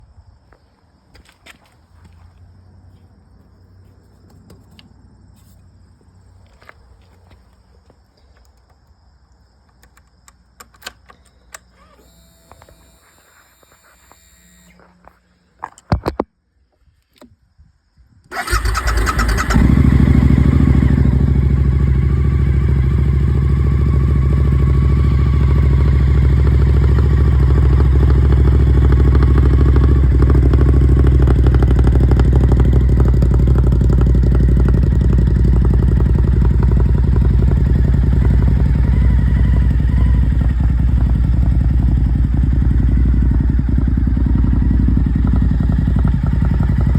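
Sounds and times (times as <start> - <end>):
motorcycle engine starting and idling: 9.6 - 16.2, 18.3 - 46.9
clicks: 9.6 - 16.4.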